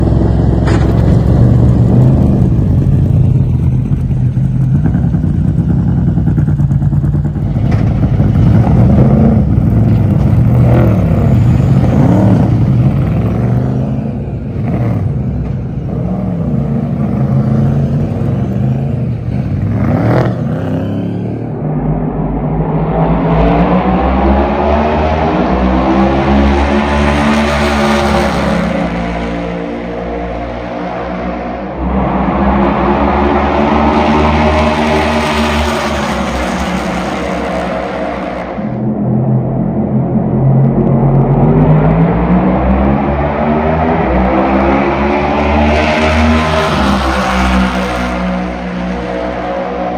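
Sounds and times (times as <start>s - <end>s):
race cars passing: 0.0s - 49.9s.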